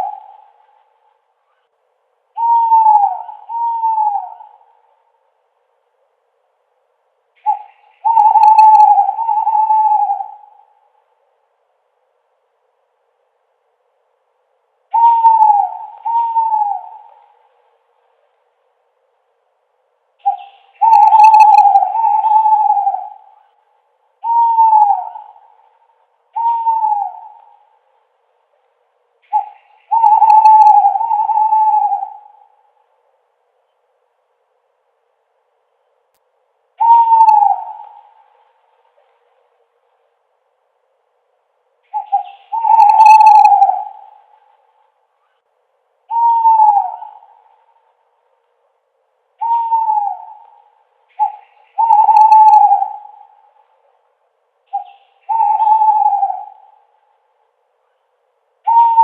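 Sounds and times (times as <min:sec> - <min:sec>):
owl hooting: 0:00.0 - 0:05.3, 0:07.3 - 0:11.2, 0:14.9 - 0:18.4, 0:20.2 - 0:28.2, 0:29.2 - 0:33.0, 0:36.8 - 0:39.3, 0:41.8 - 0:48.3, 0:49.3 - 0:54.0, 0:54.6 - 0:59.0.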